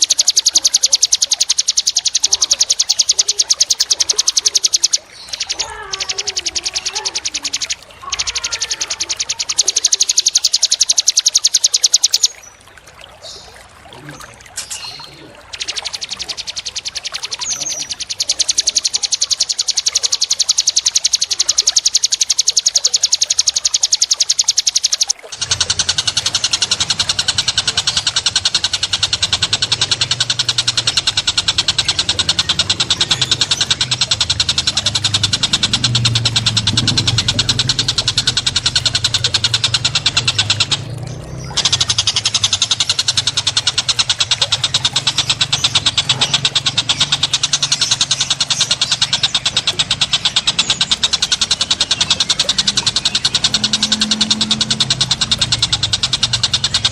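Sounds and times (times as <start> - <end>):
songbird trilling: 0.0 - 56.9
low steady rumble: 25.3 - 56.9.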